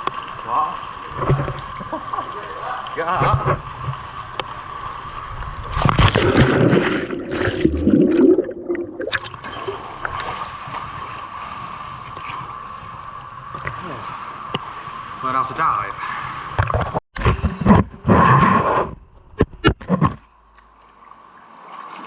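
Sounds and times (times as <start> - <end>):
water splashing and gurgling: 0.0 - 15.2.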